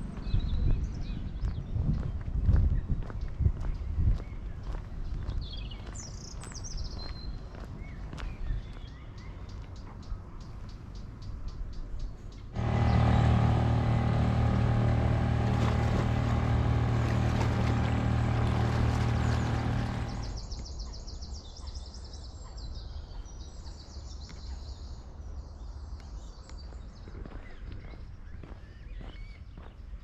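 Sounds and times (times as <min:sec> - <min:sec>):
birds chirping: 0:03.1 - 0:24.0
motor engine running: 0:12.6 - 0:20.6.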